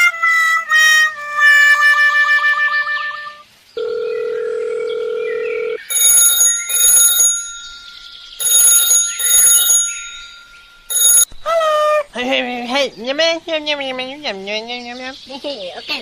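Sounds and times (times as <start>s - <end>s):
bell ringing: 5.9s - 11.3s.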